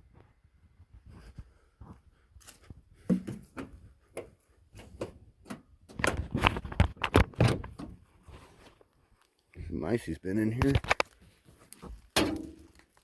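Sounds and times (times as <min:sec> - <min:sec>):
truck door clunking: 0:07.3 - 0:08.0.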